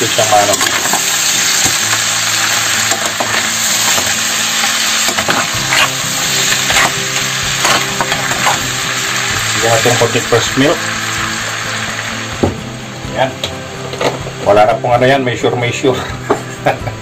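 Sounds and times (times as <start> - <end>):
crab frying in butter: 0.0 - 12.4.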